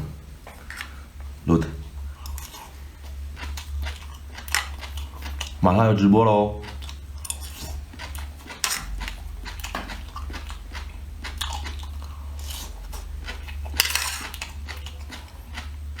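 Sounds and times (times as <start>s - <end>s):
chewing seafood: 0.4s - 16.0s
loud crunch: 6.6s - 15.8s.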